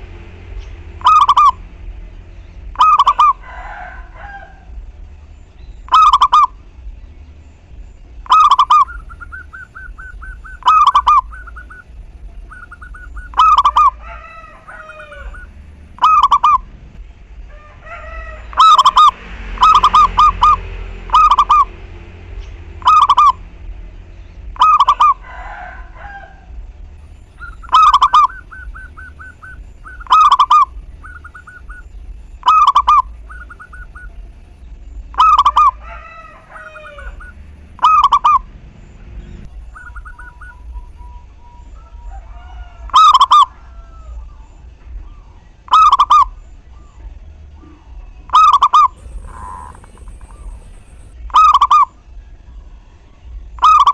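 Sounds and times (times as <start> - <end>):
doves cooing: 0.0 - 6.9, 8.1 - 17.0, 24.4 - 52.0.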